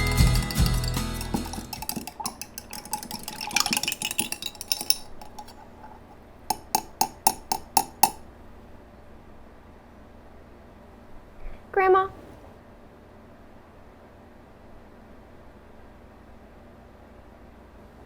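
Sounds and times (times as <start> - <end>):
sharp ringing clinks: 0.0 - 5.6
dishes and cutlery clattering: 0.0 - 8.2
stirring: 0.0 - 8.2.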